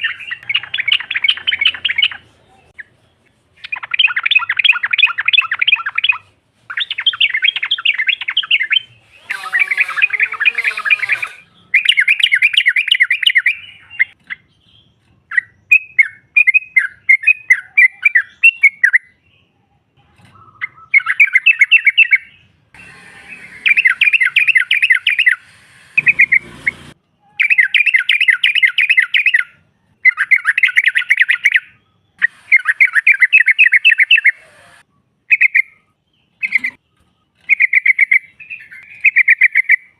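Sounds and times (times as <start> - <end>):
lower wavering bird call: 7.6 - 13.0, 22.8 - 29.4
bubbly bird chattering: 8.2 - 11.4.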